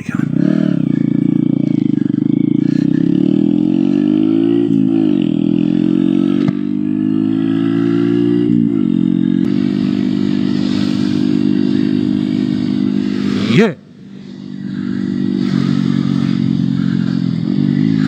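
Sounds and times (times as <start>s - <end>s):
motorcycle engine shifting up: 0.0s - 13.4s.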